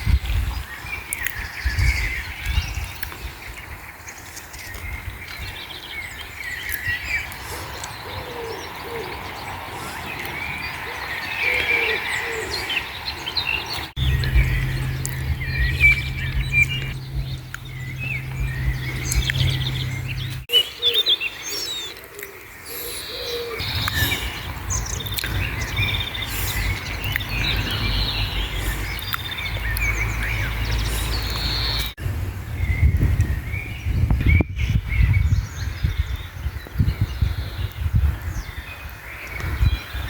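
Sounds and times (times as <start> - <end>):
songbirds chirping and singing: 0.0 - 32.0, 32.6 - 40.0
strong low rumble: 13.9 - 20.5.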